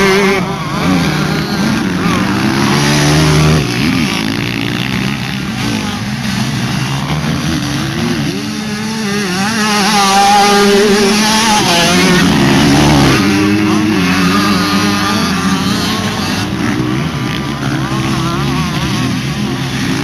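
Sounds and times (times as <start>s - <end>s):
motocross bikes revving: 0.0s - 20.0s.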